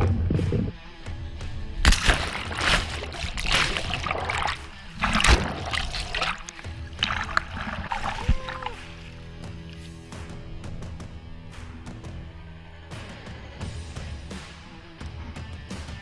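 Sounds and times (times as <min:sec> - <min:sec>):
water splashing: 0:00.0 - 0:00.8, 0:01.8 - 0:09.3
background music: 0:00.0 - 0:16.0.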